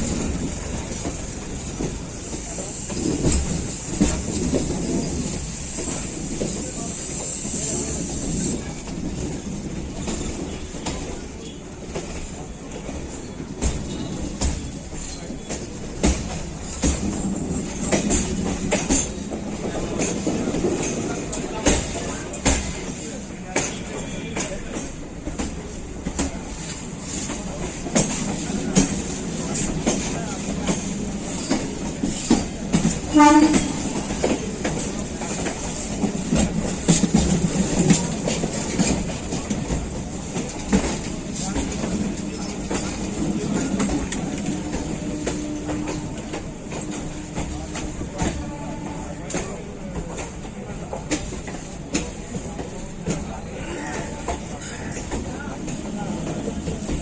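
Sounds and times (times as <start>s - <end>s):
train wheels rumbling on rail: 0.0s - 57.0s
wheels clacking over rail joints: 11.9s - 57.0s.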